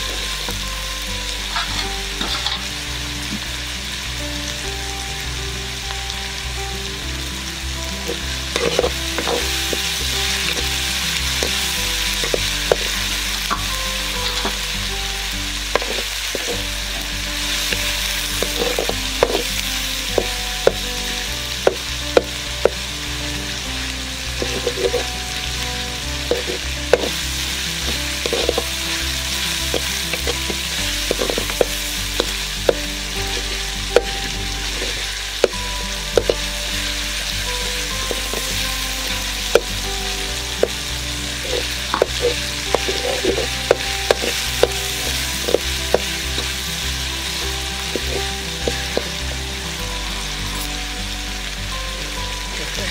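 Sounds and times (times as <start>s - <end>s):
masala sizzling in oil: 0.0s - 52.9s
metal ladle scraping a pan: 1.3s - 3.4s, 8.0s - 22.9s, 24.4s - 49.3s.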